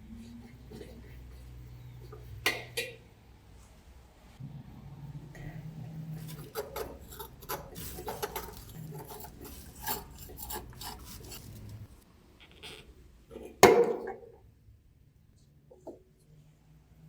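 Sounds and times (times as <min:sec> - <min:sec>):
low hum: 0:04.3 - 0:06.4
tool scraping and clicking on metal: 0:06.1 - 0:12.0.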